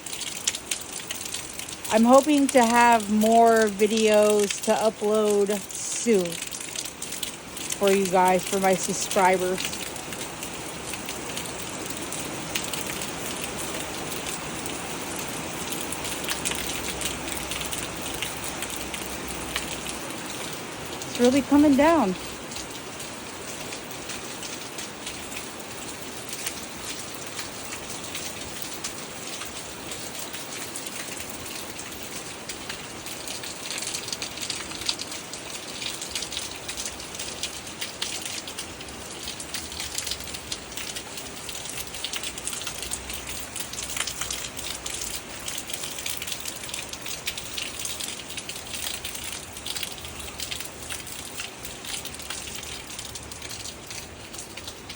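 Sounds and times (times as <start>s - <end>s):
heavy rain pouring: 0.0s - 54.9s.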